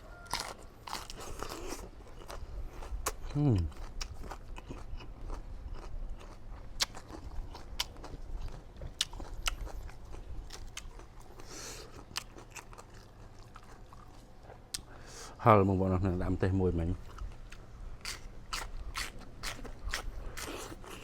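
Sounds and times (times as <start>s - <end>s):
crunching and chewing salad: 0.0s - 15.0s, 16.8s - 21.0s.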